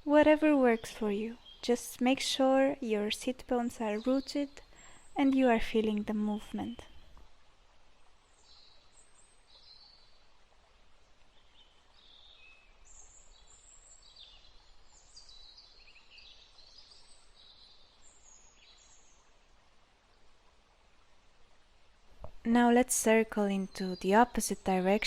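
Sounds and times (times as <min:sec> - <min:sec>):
soft background hiss: 0:00.0 - 0:25.0
birds chirping and twittering: 0:00.2 - 0:07.2, 0:08.2 - 0:10.2, 0:11.2 - 0:19.2.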